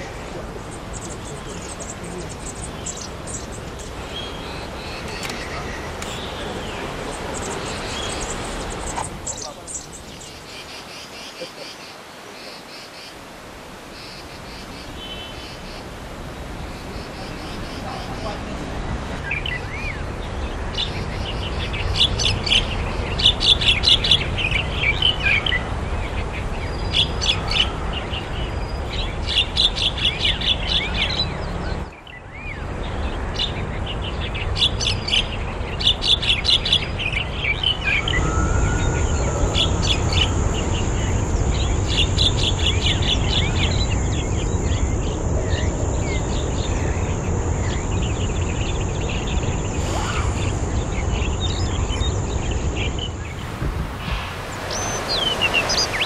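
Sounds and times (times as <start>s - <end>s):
background noise: 0.0s - 56.0s
high-pitched whine: 37.8s - 44.1s.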